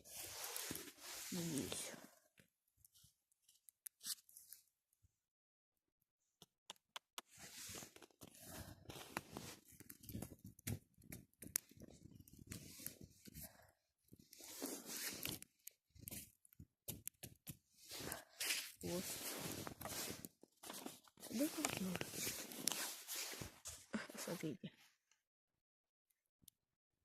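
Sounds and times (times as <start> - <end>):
dry twigs rustling and snapping: 7.7 - 13.0, 14.3 - 23.5.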